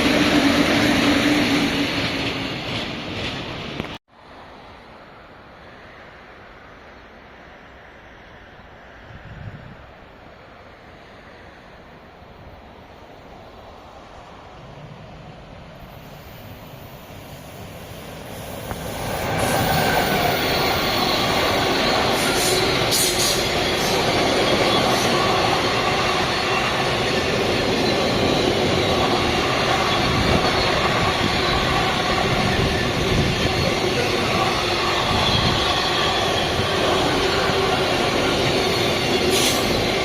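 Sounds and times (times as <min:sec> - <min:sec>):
wheels rushing on rail: 0:00.0 - 0:40.0
wheels squealing on track: 0:19.0 - 0:40.0.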